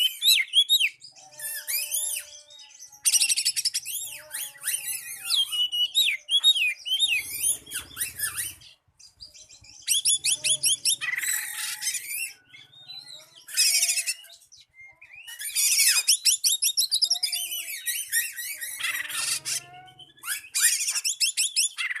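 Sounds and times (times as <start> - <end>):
bird singing fast trills: 0.0 - 22.0
lower bird whistles: 9.8 - 19.3.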